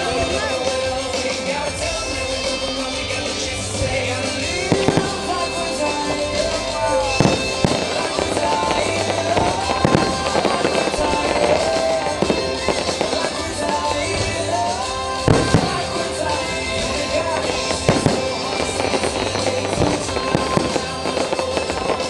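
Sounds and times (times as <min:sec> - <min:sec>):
fireworks bangs: 0:00.0 - 0:22.0
music soundtrack: 0:00.0 - 0:22.0.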